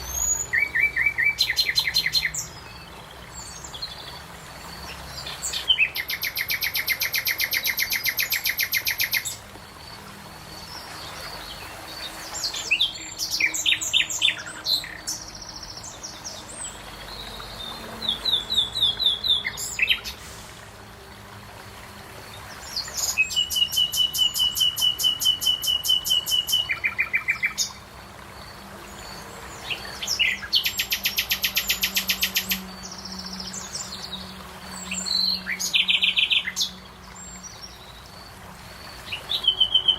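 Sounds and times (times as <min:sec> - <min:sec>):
songbird trills: 0:00.0 - 0:04.2, 0:04.8 - 0:20.2, 0:22.7 - 0:27.8, 0:29.0 - 0:39.9
birds chirping: 0:00.0 - 0:20.4, 0:28.4 - 0:39.9.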